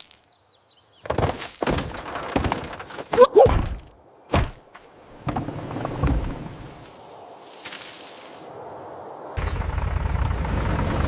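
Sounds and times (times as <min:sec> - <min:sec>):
heavy thunks and thuds: 0:01.1 - 0:04.6.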